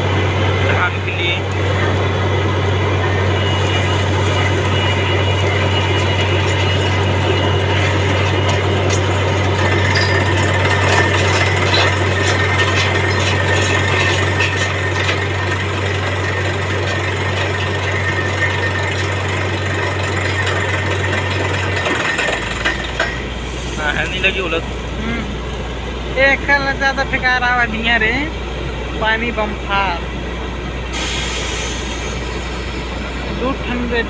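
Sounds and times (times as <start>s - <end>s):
low engine drone: 0.0s - 34.0s
clicks and rattles: 8.2s - 23.2s.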